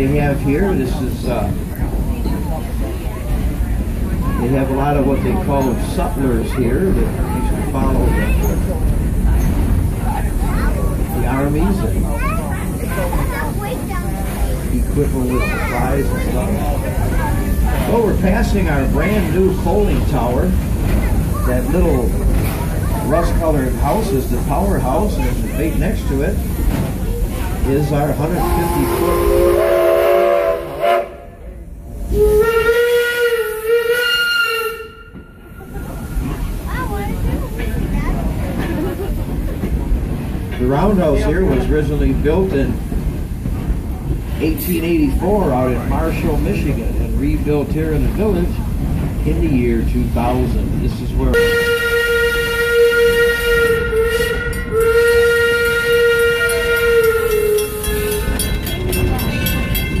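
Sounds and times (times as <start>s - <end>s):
train rumbling: 0.0s - 60.0s
steam locomotive whistle blowing: 28.4s - 31.3s, 32.1s - 35.4s, 51.3s - 58.4s.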